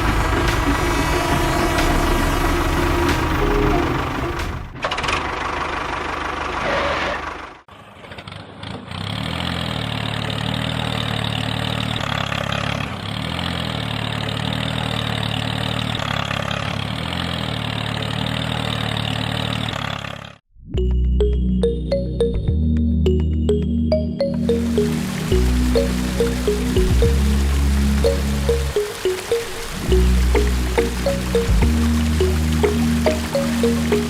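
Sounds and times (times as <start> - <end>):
small engine running: 0.0 - 20.4.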